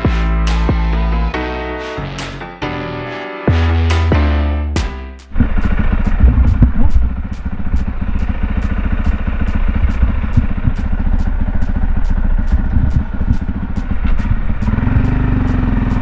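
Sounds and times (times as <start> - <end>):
motocross motorcycle engine: 5.3 - 16.0.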